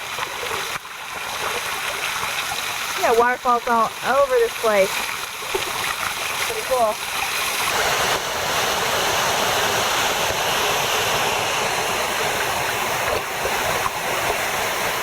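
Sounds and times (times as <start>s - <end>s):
waterfall splashing: 0.0s - 15.0s.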